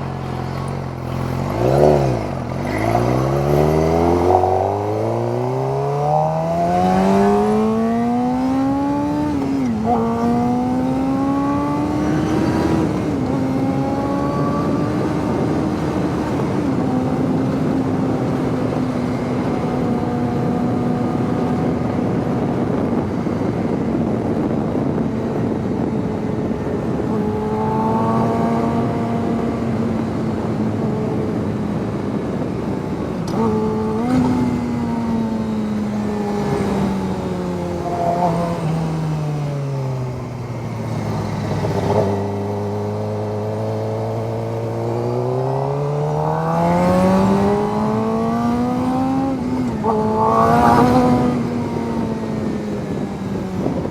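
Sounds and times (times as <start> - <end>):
motorcycle engine accelerating: 0.0 - 53.9
wind noise rushing: 1.3 - 53.9.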